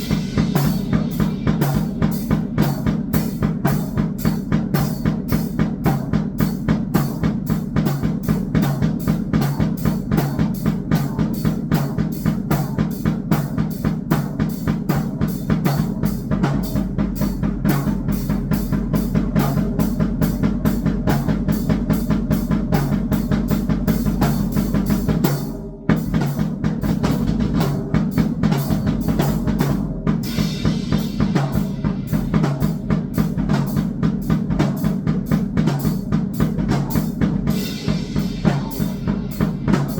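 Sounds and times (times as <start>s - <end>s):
electronic drum-like hits: 0.0s - 3.6s.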